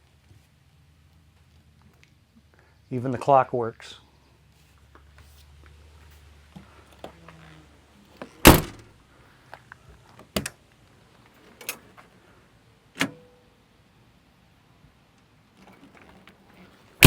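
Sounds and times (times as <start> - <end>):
vehicle door shutting: 8.2 - 8.9, 13.0 - 13.2.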